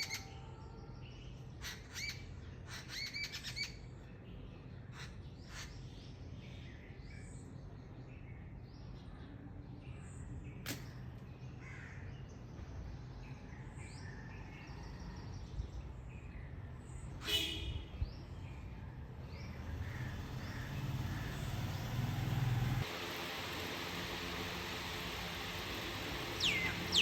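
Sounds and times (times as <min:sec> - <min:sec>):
small birds chirping: 0:00.0 - 0:27.0
sharp click: 0:10.6 - 0:11.3.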